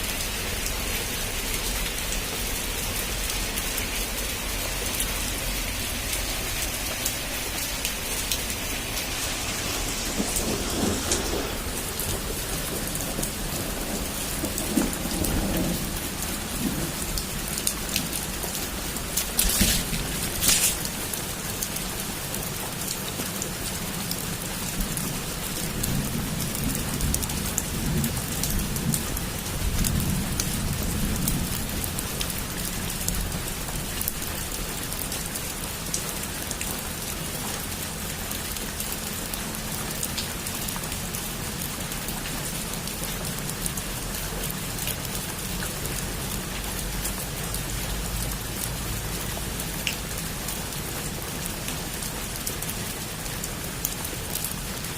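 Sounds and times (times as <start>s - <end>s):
heavy rain on a roof: 0.0s - 54.9s
low rumble of thunder: 7.4s - 21.1s, 24.1s - 33.5s.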